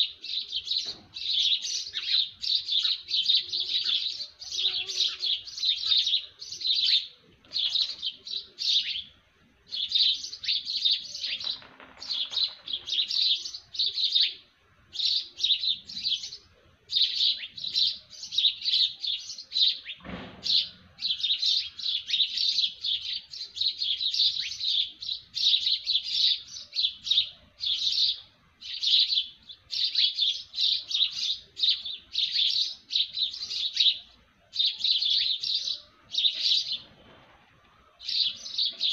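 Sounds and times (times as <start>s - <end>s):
small birds chirping: 0.0s - 38.9s
brief thump: 20.0s - 20.8s.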